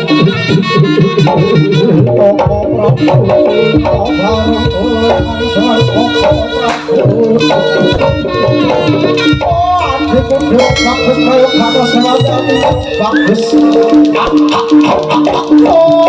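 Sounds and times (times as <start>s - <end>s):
wavering reedy melody: 0.0s - 16.0s
hand drums fast rhythm: 0.7s - 16.0s
ringing gong-chime tones: 10.5s - 11.8s.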